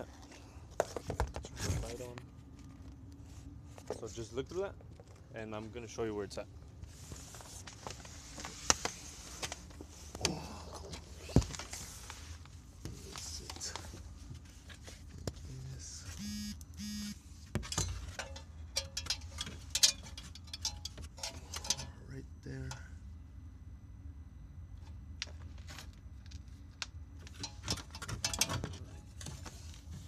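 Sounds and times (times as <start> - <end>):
low steady hum: 0.0 - 30.0
short electronic beeps: 16.2 - 17.2
tools clicking and knocking: 17.6 - 21.9, 27.3 - 28.9.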